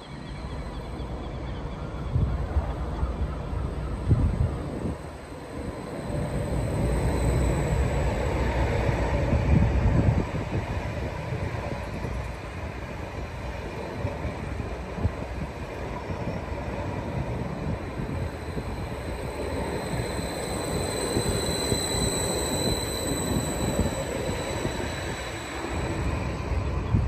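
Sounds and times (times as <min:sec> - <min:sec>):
train rumbling on rails: 0:00.0 - 0:27.0
high wheel squeal: 0:03.8 - 0:10.6, 0:17.1 - 0:27.0.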